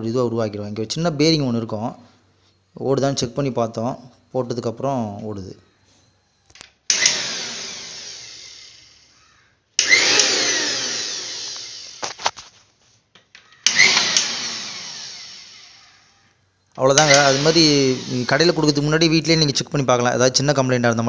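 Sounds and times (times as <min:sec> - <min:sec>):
mixer grinder motor whining: 0:06.9 - 0:09.2, 0:09.8 - 0:12.4, 0:13.6 - 0:16.2, 0:16.8 - 0:19.6.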